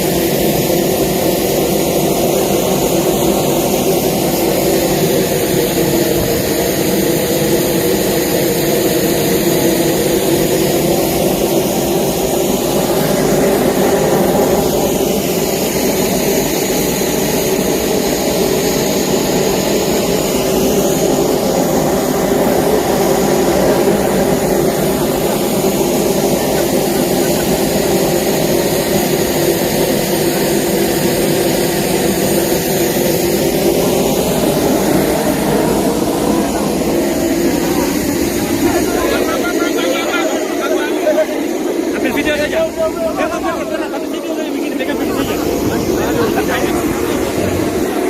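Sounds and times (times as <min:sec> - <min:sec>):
engine drone with whine: 0:00.0 - 0:48.0.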